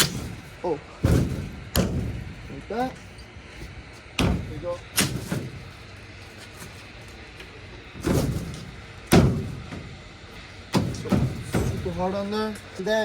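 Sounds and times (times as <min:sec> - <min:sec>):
thumps on truck bed cover: 0:00.0 - 0:02.5, 0:04.2 - 0:05.7, 0:08.0 - 0:10.0, 0:10.7 - 0:12.0.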